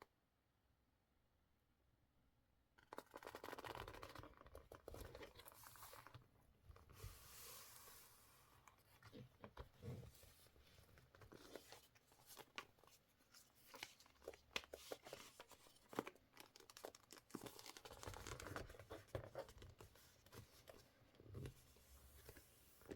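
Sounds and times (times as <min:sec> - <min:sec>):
paper rustling and crinkling: 0:06.8 - 0:22.9.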